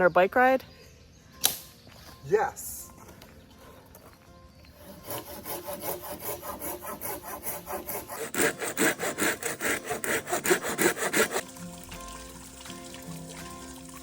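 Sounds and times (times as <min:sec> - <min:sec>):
saw cutting strokes: 0:04.8 - 0:11.6.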